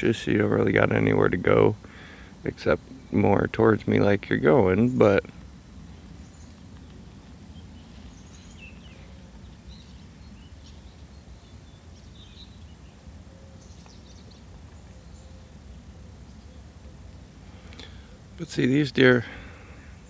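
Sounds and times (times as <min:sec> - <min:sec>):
faint birds chirping: 0:00.0 - 0:20.0.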